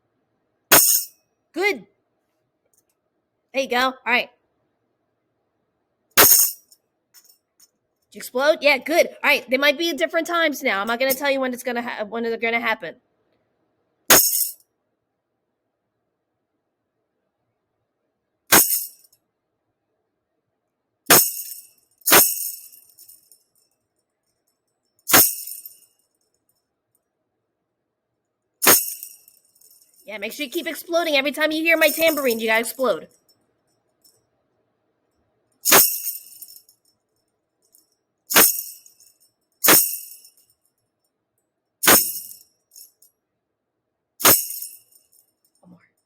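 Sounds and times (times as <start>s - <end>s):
tambourine jangling: 0.7s - 1.2s, 6.2s - 7.7s, 14.1s - 14.6s, 18.5s - 19.2s, 21.1s - 26.6s, 28.6s - 30.1s, 31.8s - 34.2s, 35.6s - 40.9s, 41.8s - 43.1s, 44.2s - 46.0s.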